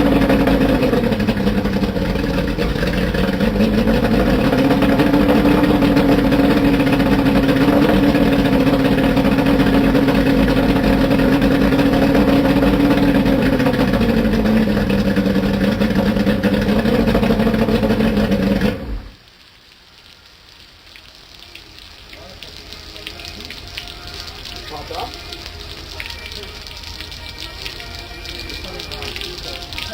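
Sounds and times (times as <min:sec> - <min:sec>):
outboard motor running: 0:00.0 - 0:19.2.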